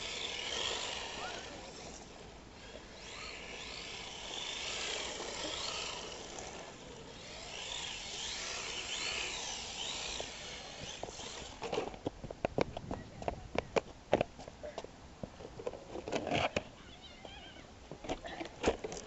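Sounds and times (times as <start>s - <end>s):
toy car motor whining: 0.0s - 12.0s.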